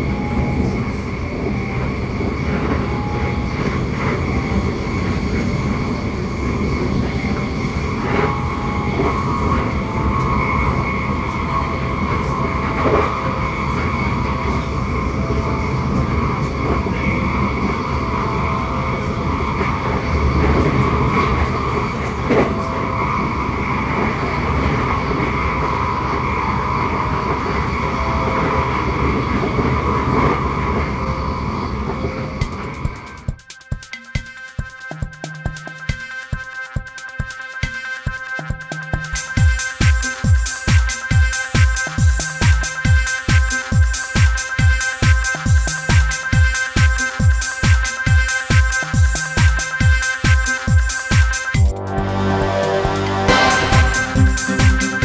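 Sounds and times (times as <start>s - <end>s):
train wheels rumbling on track: 0.0s - 33.4s
high whine: 0.0s - 36.4s, 38.1s - 55.0s.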